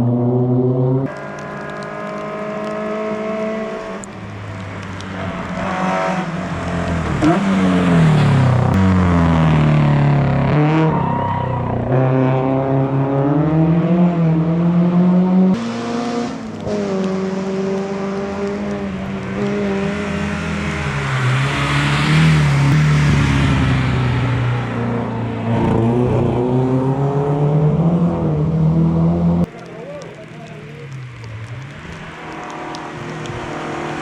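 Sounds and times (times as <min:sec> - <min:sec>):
racing car engine revving: 0:11.8 - 0:29.5.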